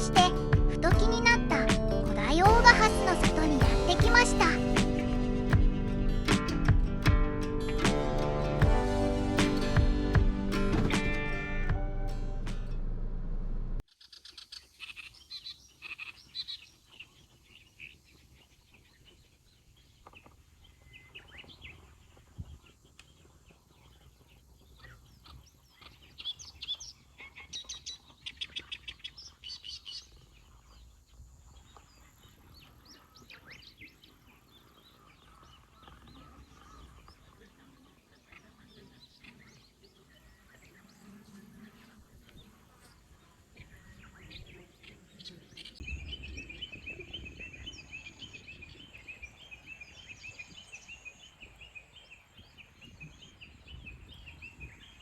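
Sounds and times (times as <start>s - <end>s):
small birds chirping: 13.9s - 55.0s.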